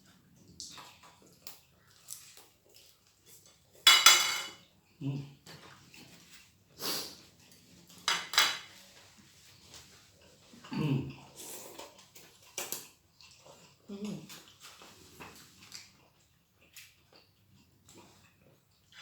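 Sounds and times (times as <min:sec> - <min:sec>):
cutlery clinking on plates: 0:03.9 - 0:04.6, 0:08.0 - 0:08.8.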